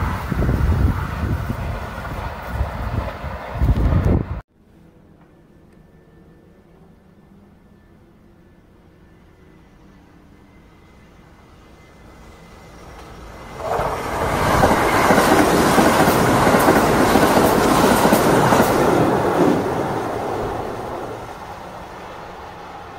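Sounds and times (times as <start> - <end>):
train passing at speed: 0.0 - 4.4, 5.8 - 22.9.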